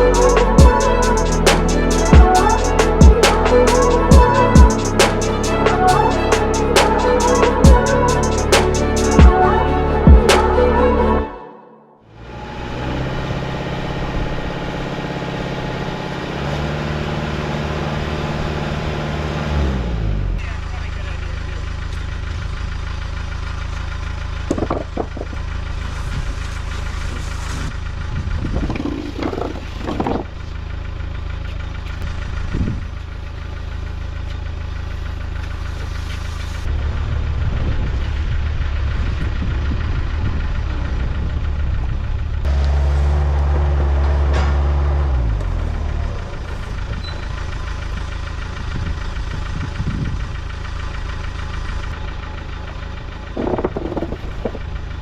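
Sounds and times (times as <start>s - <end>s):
diesel tractor engine revving: 0.0s - 11.4s, 12.0s - 55.0s.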